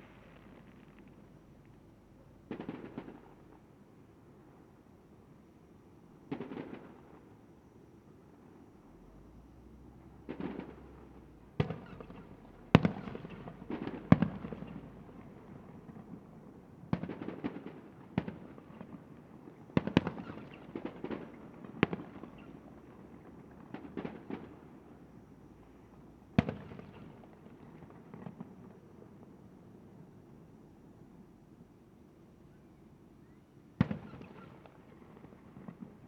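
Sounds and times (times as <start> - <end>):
fireworks bangs with crackle: 2.5 - 3.7, 6.3 - 7.3, 10.3 - 25.1, 25.7 - 29.4, 33.8 - 36.0.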